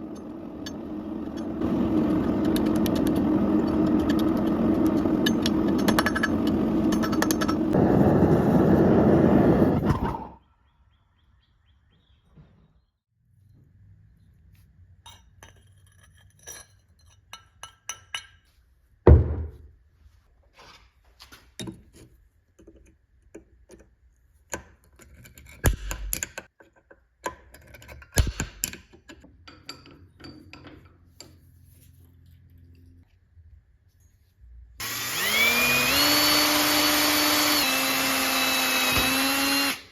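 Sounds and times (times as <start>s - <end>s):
metal tools clinking: 15.0s - 18.4s
heavy thunk: 19.1s - 19.6s.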